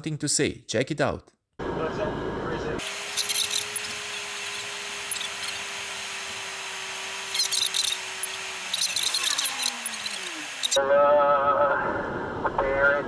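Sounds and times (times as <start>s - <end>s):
noise bed: 2.8s - 10.8s
high crackling rustle: 7.2s - 10.8s.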